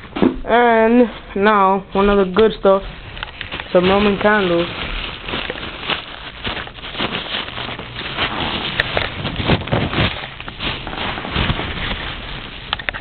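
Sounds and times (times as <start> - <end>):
packaging rustling: 2.9 - 13.0.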